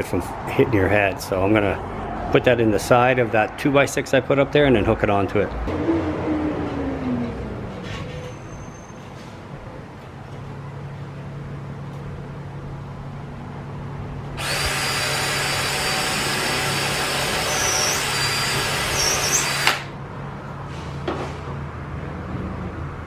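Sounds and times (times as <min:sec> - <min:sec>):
drill click: 0:14.4 - 0:19.9
power drill drilling into wood: 0:14.4 - 0:19.9.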